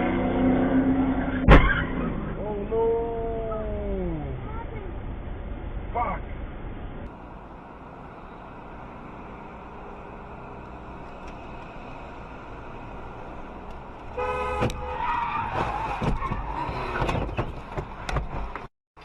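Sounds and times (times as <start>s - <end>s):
car road and engine noise: 0.0s - 18.7s
car horn: 14.1s - 15.6s.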